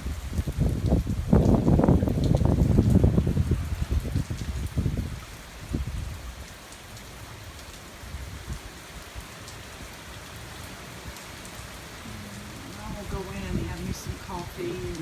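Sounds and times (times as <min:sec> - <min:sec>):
wind buffeting microphone: 0:00.0 - 0:06.4, 0:11.7 - 0:15.0
heavy rain pattering: 0:00.0 - 0:15.0.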